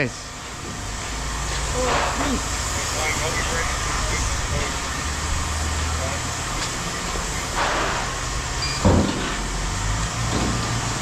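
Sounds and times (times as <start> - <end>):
engine running: 0.0 - 11.0
loud thump: 8.8 - 9.5.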